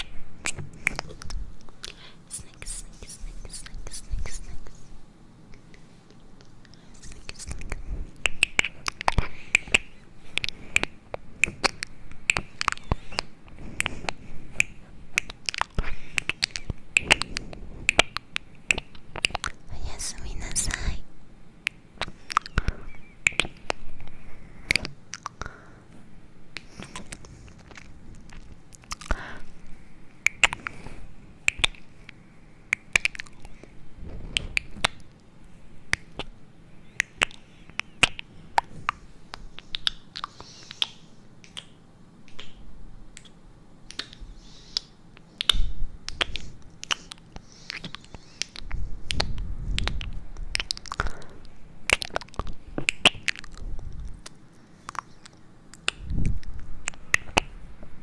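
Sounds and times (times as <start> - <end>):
low muffled rumbles: 0.0 - 21.3, 33.2 - 36.4.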